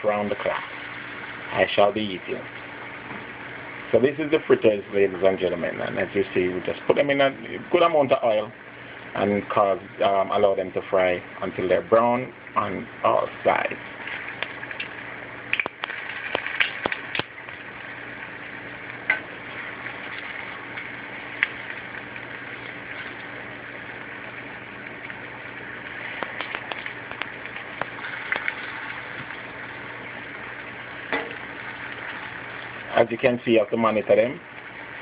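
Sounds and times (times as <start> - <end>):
fritters deep-frying in oil: 12.6 - 35.0.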